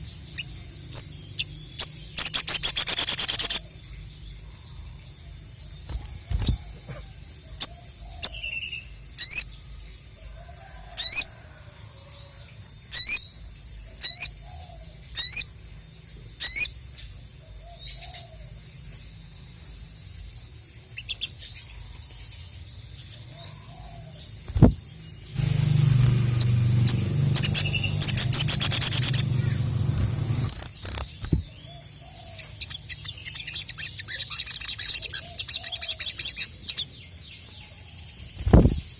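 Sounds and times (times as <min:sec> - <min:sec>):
fast chattering twitter: 0:00.4 - 0:03.7, 0:25.5 - 0:31.5, 0:32.5 - 0:36.9
bird chips: 0:24.4 - 0:31.7
low hum: 0:24.5 - 0:31.4
loud rustling noise: 0:24.5 - 0:31.5.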